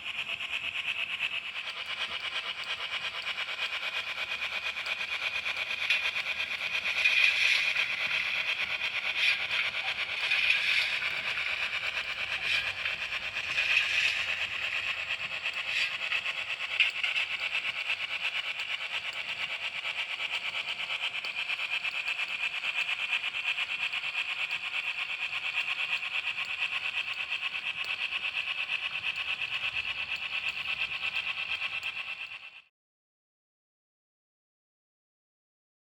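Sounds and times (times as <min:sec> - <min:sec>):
model train motor whine: 0:00.0 - 0:32.7
wheels clicking over rail joints: 0:04.8 - 0:19.4.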